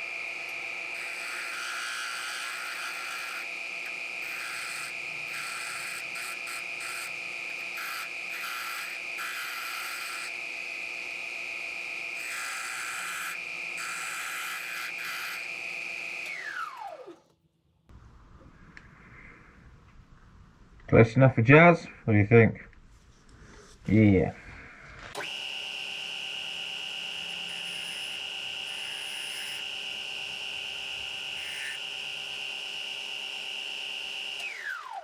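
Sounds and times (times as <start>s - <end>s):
hissing of work against machine: 0.0s - 11.0s
woodworking machine whining: 0.0s - 17.3s, 17.9s - 21.0s, 21.6s - 35.0s.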